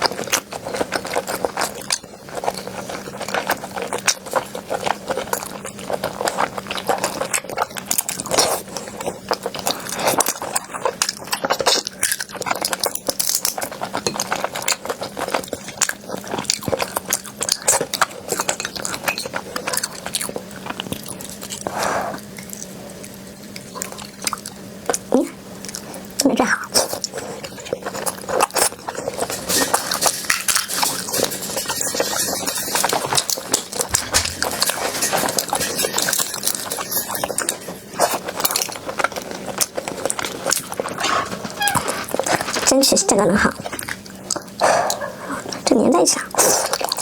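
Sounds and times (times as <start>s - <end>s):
crunchy food chewing: 0.0s - 47.0s.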